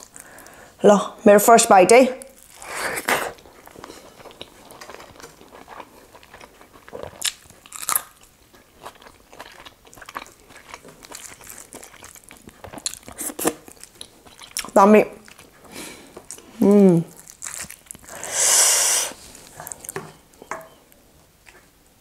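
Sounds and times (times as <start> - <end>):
person chewing food: 2.3 - 21.7
crunchy bites: 6.9 - 8.3, 17.1 - 18.2.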